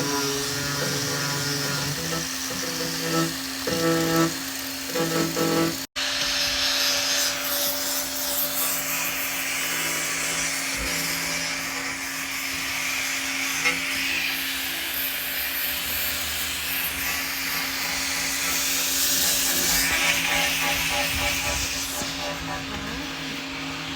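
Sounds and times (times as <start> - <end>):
rubbing scraping noise: 0.0 - 5.9.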